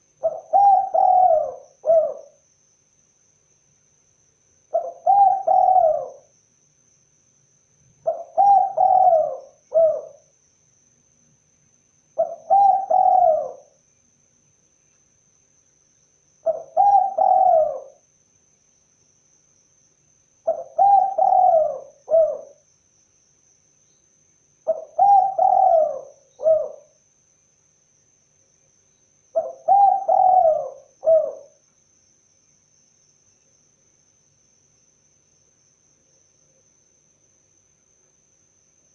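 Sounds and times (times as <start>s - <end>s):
dove cooing: 0.2s - 2.4s, 4.7s - 6.3s, 8.0s - 10.2s, 12.2s - 13.8s, 16.4s - 18.0s, 20.5s - 22.6s, 24.7s - 27.0s, 29.3s - 31.6s.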